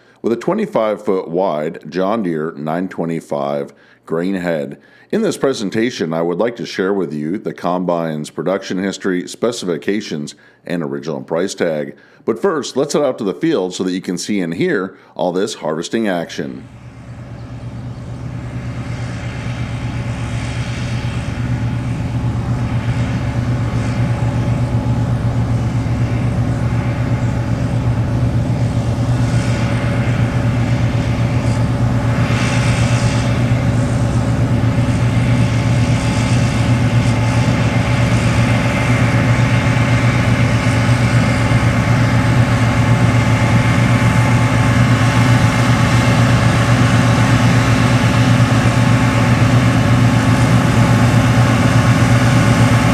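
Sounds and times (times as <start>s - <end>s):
diesel engine running steadily: 16.6s - 52.9s
threshing machinery hum: 16.6s - 52.9s.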